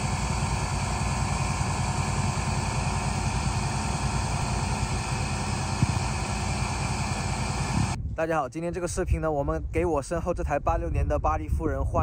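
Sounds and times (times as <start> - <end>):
car engine idling: 0.0 - 8.0.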